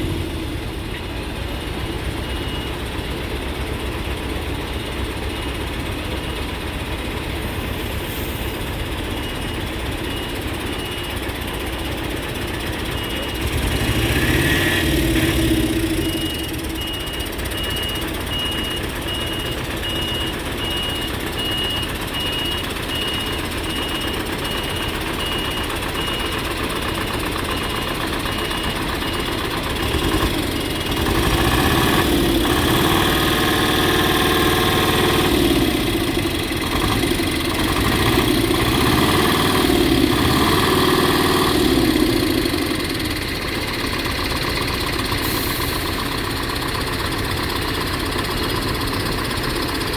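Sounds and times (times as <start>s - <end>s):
heavy diesel machinery running: 0.0s - 49.9s
high-pitched beeping: 15.3s - 36.3s.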